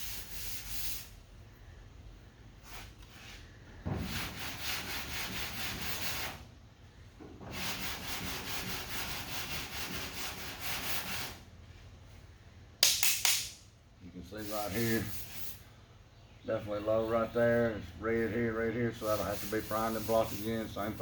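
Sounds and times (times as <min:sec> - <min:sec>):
sandpaper rubbing on bodywork: 0:00.0 - 0:01.1, 0:04.1 - 0:06.4, 0:07.6 - 0:11.4, 0:14.4 - 0:15.6, 0:17.5 - 0:21.0.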